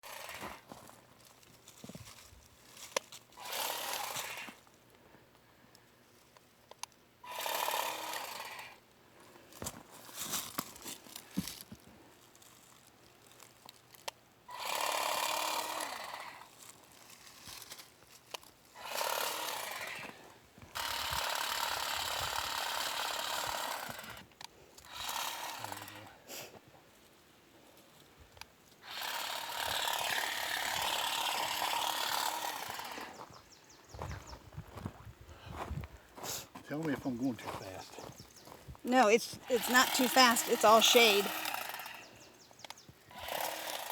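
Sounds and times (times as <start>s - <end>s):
powered trimmer cutting plants: 0.0s - 1.0s, 2.8s - 4.7s, 7.2s - 8.8s, 14.0s - 26.3s, 28.8s - 33.4s, 36.8s - 43.9s.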